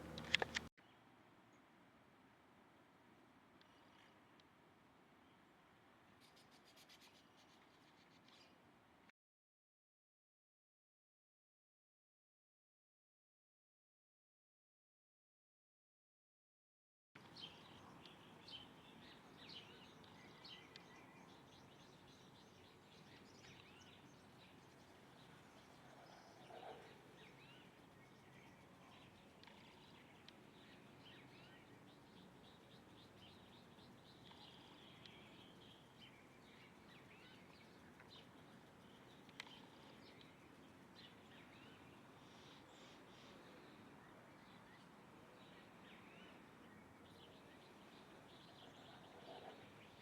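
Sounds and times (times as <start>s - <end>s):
songbirds chirping and trilling: 0.0s - 1.7s, 17.2s - 50.0s.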